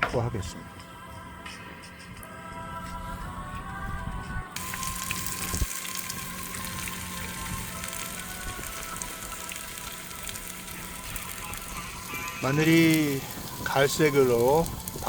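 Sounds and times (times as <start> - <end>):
faint background music: 0.0 - 15.0
garlic sizzling in a pan: 4.6 - 15.0.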